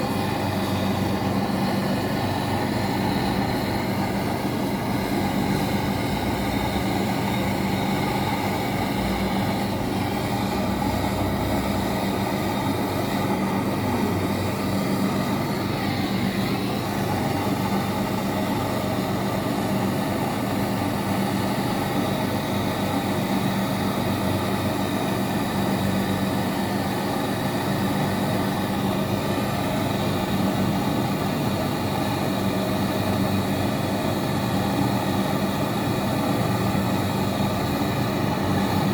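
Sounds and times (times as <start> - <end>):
air conditioning drone: 0.0 - 38.9.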